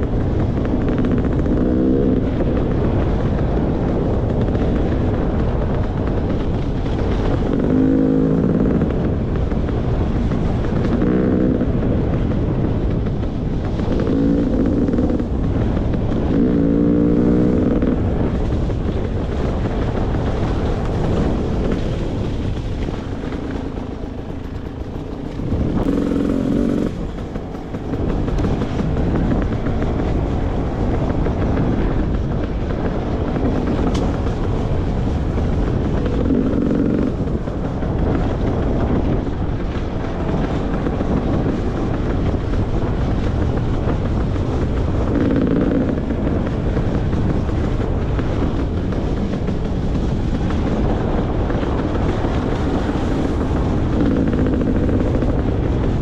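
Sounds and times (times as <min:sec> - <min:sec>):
steady rush of noise: 0:00.0 - 0:56.0
dirt bike engine revving: 0:00.7 - 0:02.5, 0:07.4 - 0:09.2, 0:10.6 - 0:12.0, 0:13.7 - 0:18.2, 0:22.9 - 0:29.7, 0:36.0 - 0:37.2.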